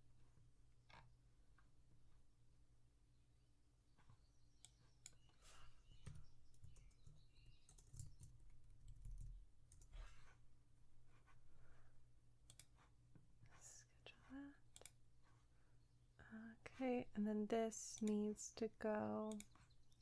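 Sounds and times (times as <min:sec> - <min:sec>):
mouse clicks: 0:04.0 - 0:08.3, 0:12.5 - 0:12.8, 0:19.3 - 0:20.0
keyboard typing: 0:04.6 - 0:10.0.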